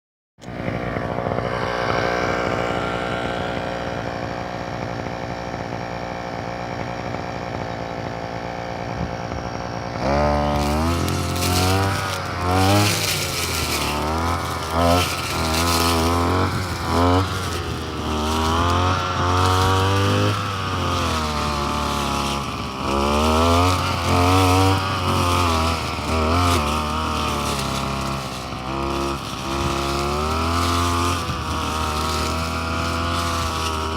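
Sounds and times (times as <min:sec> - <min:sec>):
brush cutter engine revving: 0:00.4 - 0:33.9.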